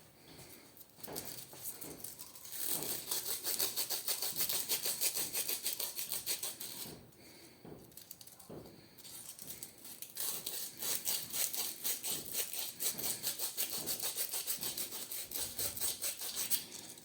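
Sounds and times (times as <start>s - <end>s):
sandpaper rasping on steel shaft: 2.5s - 7.0s, 10.2s - 16.8s.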